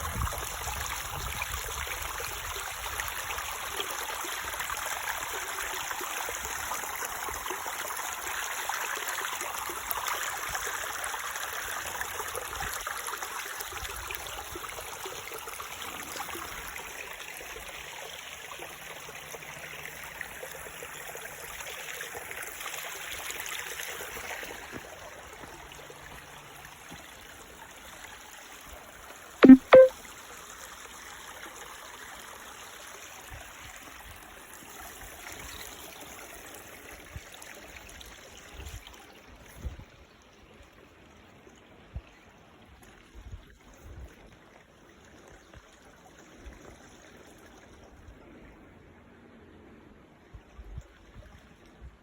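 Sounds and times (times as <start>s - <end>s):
rushing water: 0.0s - 29.9s.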